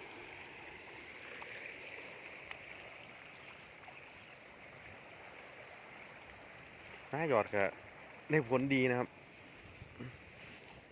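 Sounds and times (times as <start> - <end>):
rushing floodwater: 0.0 - 10.9
faint click: 2.4 - 2.6.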